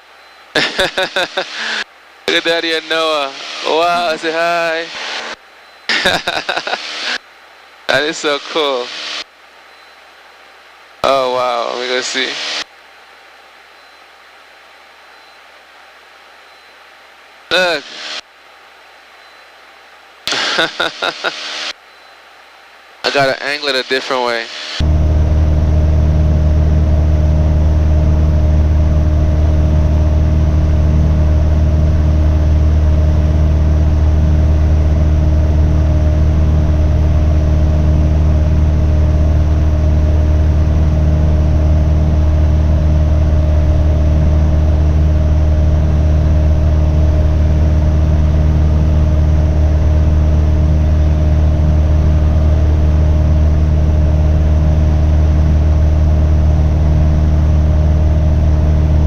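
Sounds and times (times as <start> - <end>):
aircraft engine and propeller drone: 24.6 - 59.0.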